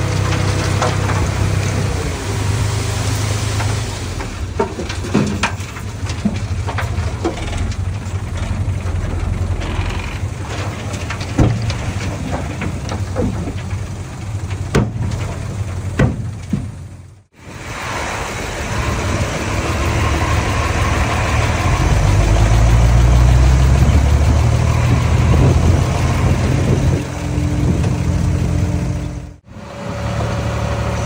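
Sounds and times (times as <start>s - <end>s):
bulldozer diesel engine running: 0.0s - 31.0s
sharp metal knocks and clanks: 4.6s - 17.1s.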